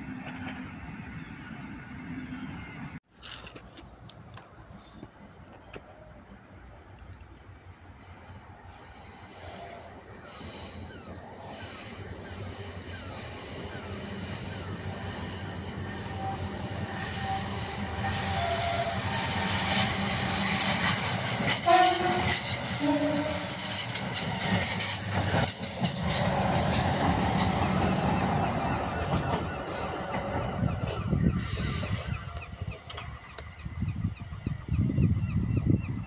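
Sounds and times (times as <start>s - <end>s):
electric train approaching: 0.0s - 35.8s
high steady squeal: 3.7s - 28.9s
two-tone train horn: 21.4s - 23.8s.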